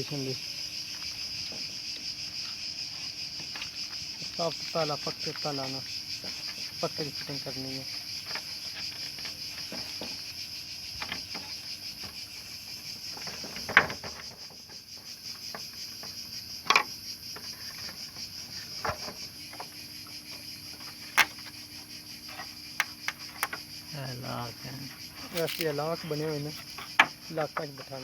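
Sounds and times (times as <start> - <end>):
crickets chirring: 0.0 - 28.0
plastic parts clicking: 25.4 - 25.7.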